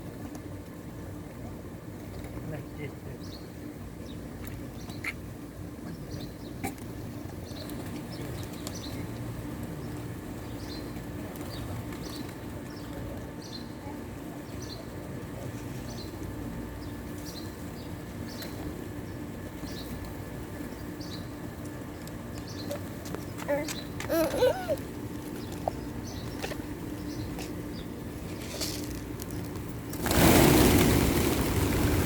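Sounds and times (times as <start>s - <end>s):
steady low hum: 0.0s - 32.0s
pigeons cooing: 23.6s - 26.5s.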